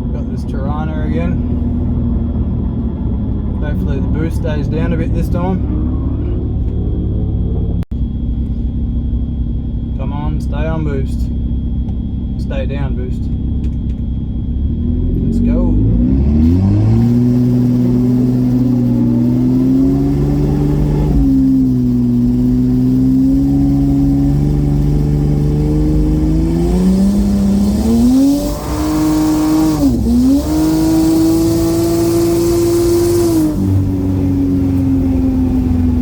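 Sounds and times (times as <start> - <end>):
turbo engine accelerating: 0.0 - 36.0.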